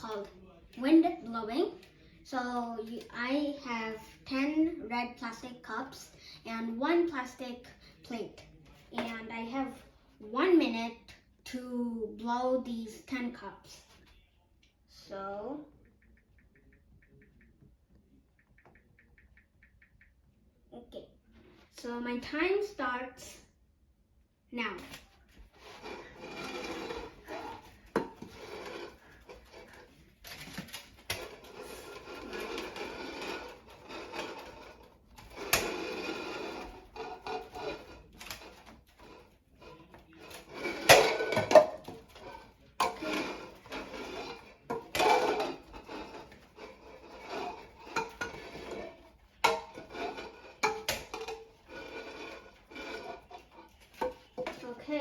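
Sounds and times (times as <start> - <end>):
plastic cups clattering: 25.6 - 39.2, 40.0 - 54.8.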